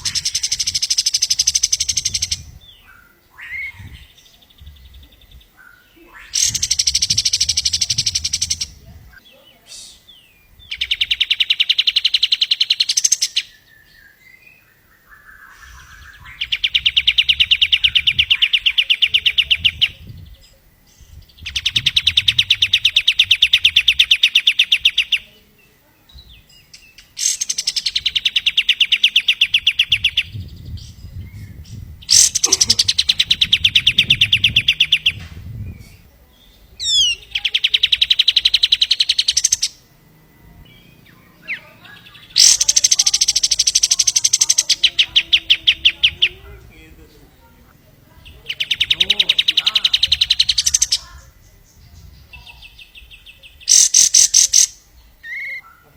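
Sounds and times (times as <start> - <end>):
songbird rapid trill: 0.0 - 55.9
bird call: 5.1 - 20.6, 26.2 - 30.4, 32.1 - 35.2, 36.0 - 46.4, 48.2 - 55.9.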